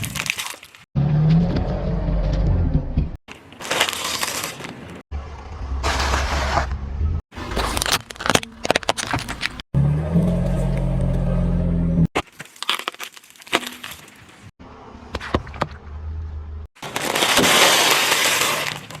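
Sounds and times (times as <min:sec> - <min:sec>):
objects cracking and crunching: 0:00.0 - 0:00.9, 0:03.3 - 0:05.0, 0:07.4 - 0:09.6, 0:12.2 - 0:14.5, 0:16.8 - 0:19.0.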